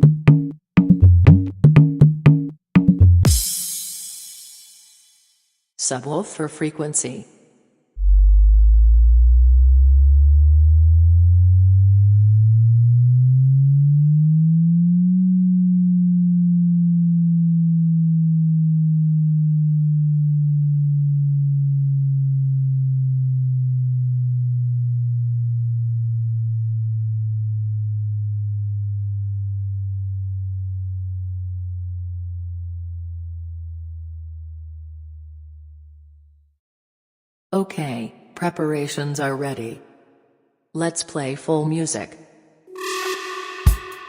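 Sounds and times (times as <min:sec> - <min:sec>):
low sine tone sweeping: 0:08.0 - 0:36.4, 0:42.7 - 0:44.0.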